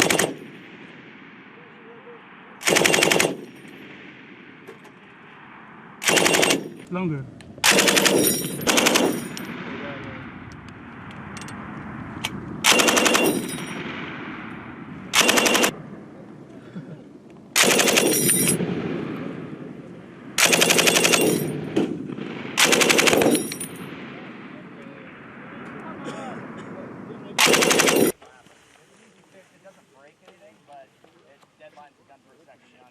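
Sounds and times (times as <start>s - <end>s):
machine gun bursts: 0.0s - 0.4s, 2.6s - 3.5s, 6.0s - 6.7s, 7.6s - 9.4s, 12.7s - 13.7s, 15.2s - 15.8s, 17.6s - 18.6s, 20.4s - 21.6s, 22.6s - 23.7s, 27.4s - 28.2s
gunshot echoes: 0.0s - 10.9s, 12.6s - 16.8s, 17.6s - 28.2s.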